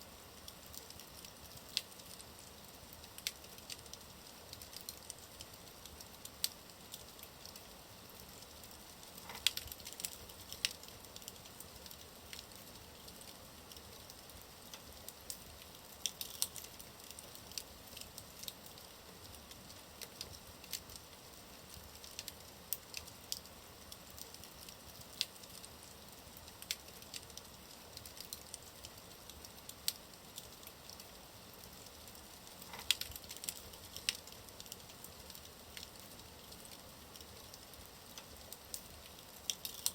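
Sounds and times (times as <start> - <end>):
wood fire crackling and popping: 0.1 - 39.9.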